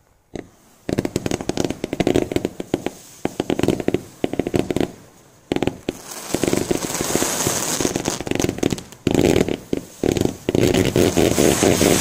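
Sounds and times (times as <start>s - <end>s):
fireworks crackling: 0.0s - 12.0s
rushing hiss: 0.4s - 12.0s.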